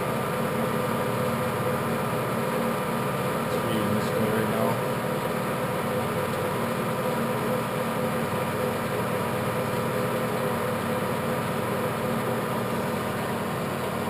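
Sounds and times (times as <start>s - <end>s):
lathe running: 0.0s - 14.0s.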